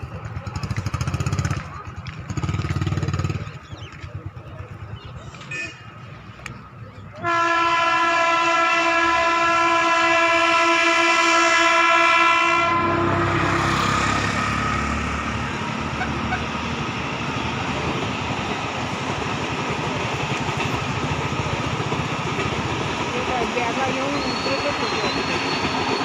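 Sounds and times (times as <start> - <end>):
train rumbling along tracks: 0.0 - 26.0
train horn blast: 7.2 - 14.0.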